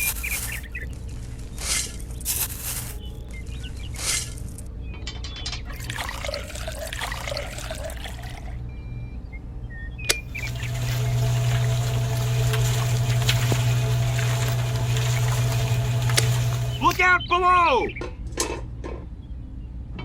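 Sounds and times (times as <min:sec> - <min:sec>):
liquid pouring and splashing: 0:05.7 - 0:08.6, 0:10.2 - 0:17.0
low hum: 0:10.1 - 0:17.0.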